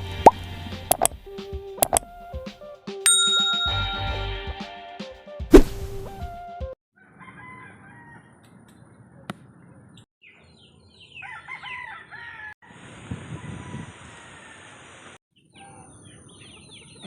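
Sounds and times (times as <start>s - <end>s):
rooster crowing: 7.0s - 8.4s, 11.2s - 12.6s, 13.3s - 15.0s.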